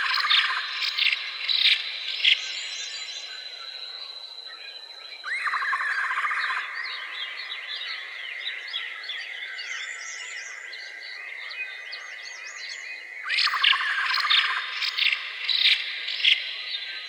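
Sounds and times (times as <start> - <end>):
birds chirping: 0.0 - 17.0
bird trill: 13.2 - 16.7.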